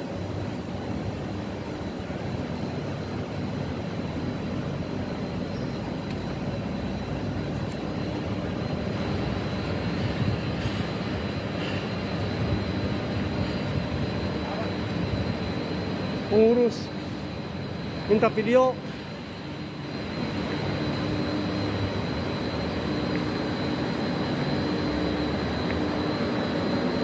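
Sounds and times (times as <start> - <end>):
motor low rumble with whine: 0.0 - 27.0.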